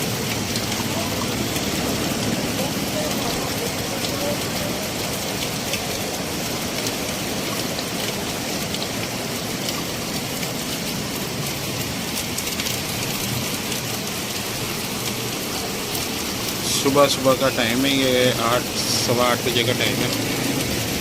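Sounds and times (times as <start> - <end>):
rain falling: 0.0 - 21.0
raindrop hits: 0.0 - 21.0.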